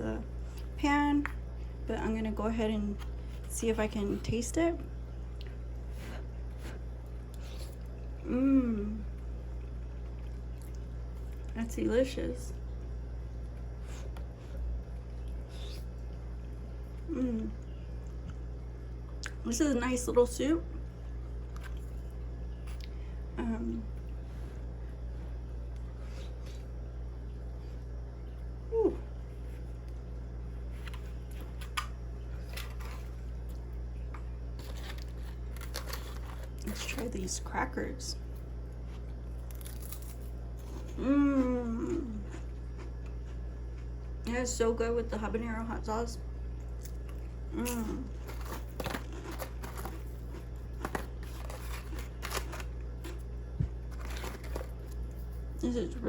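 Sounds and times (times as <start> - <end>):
steady low hum: 0.0 - 56.0
chewing crunchy crackers: 9.0 - 11.6, 12.6 - 19.4, 20.7 - 23.0, 29.4 - 37.5, 38.2 - 44.3, 46.4 - 55.6.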